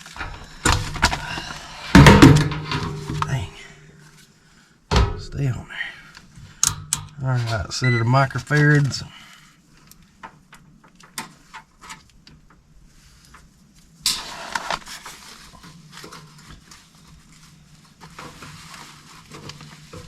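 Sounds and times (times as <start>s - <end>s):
scraping rustle: 0.0s - 4.4s, 12.8s - 20.0s.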